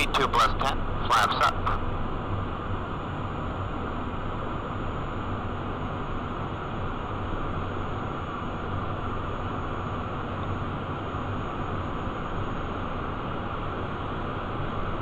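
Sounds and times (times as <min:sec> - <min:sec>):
faint high whine: 0:00.0 - 0:01.8.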